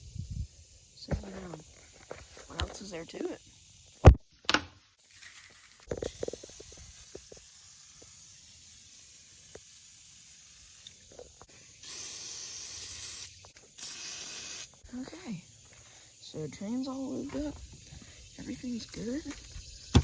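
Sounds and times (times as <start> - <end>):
aerosol spray hissing: 5.1 - 20.0.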